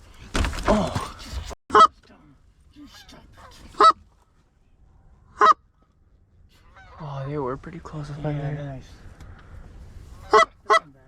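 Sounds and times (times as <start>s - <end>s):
geese honking: 5.3s - 5.6s, 6.6s - 7.4s, 10.2s - 11.0s.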